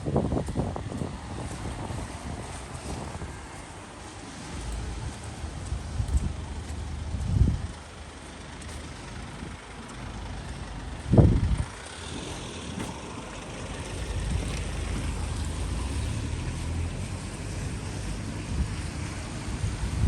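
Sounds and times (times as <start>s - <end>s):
low traffic rumble: 0.0s - 20.0s
vehicles passing: 0.0s - 20.0s.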